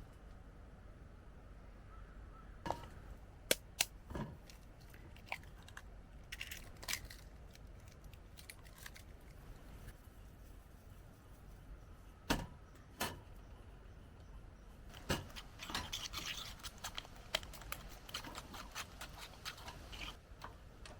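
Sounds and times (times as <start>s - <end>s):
faint low background noise: 0.0s - 20.9s
small objects clicking and knocking: 3.8s - 9.4s, 14.9s - 20.2s.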